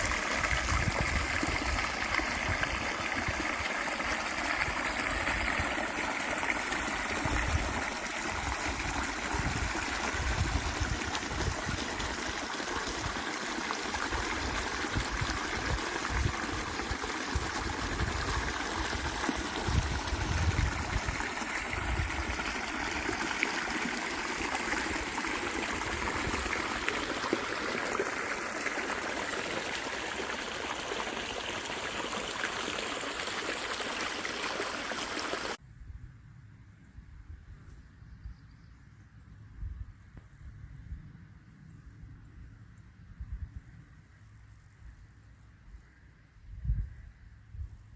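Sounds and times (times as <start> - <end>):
stream flowing and trickling: 0.0 - 35.6.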